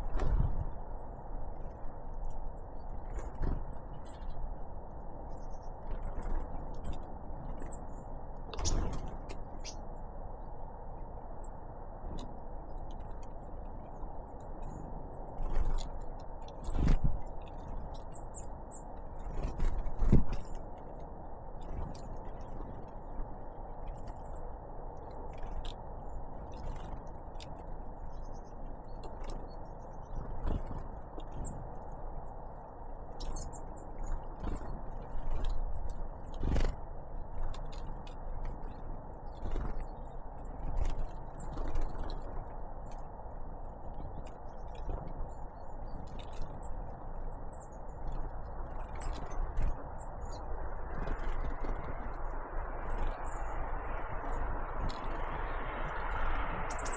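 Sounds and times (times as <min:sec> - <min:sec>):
birds pecking at seed: 0:08.5 - 0:09.8, 0:12.1 - 0:24.4, 0:33.0 - 0:56.9.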